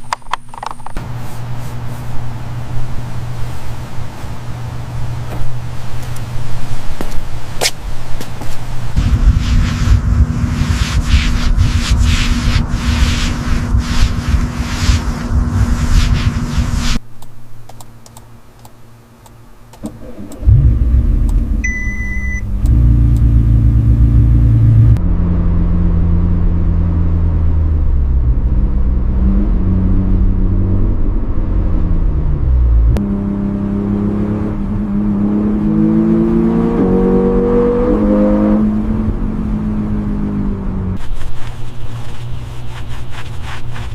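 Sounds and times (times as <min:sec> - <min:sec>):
car engine starting and revving: 0:19.8 - 0:41.0
short electronic beep: 0:21.6 - 0:22.5.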